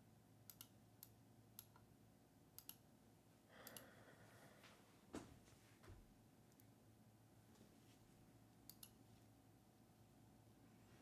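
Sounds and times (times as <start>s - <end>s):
computer mouse clicks: 0.5s - 1.9s, 2.6s - 2.8s, 3.6s - 3.9s, 8.7s - 9.0s.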